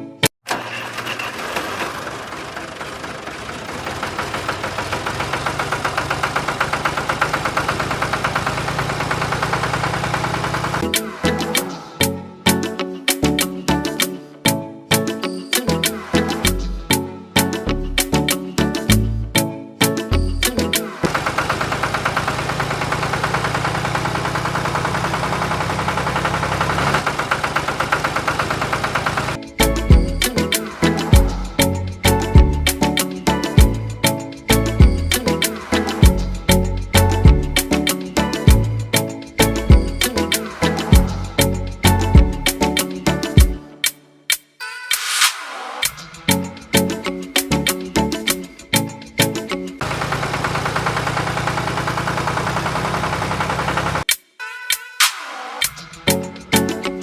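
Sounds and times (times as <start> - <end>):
music: 0.0 - 0.3, 10.8 - 21.1, 29.3 - 49.8, 54.1 - 57.0
small engine chugging: 0.5 - 10.9, 21.1 - 30.1, 49.8 - 54.1.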